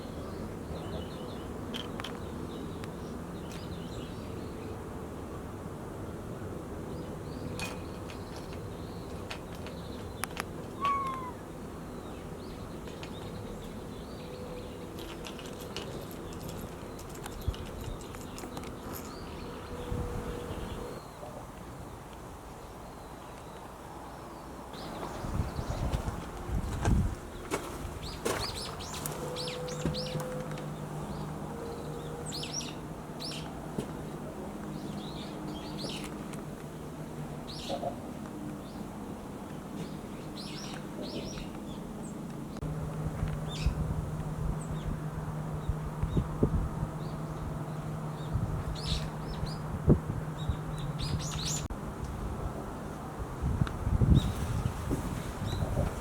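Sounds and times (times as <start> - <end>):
small birds chirping: 6.9 - 15.0, 37.5 - 42.6, 47.0 - 49.7, 50.4 - 51.7
cat meowing: 10.8 - 11.4.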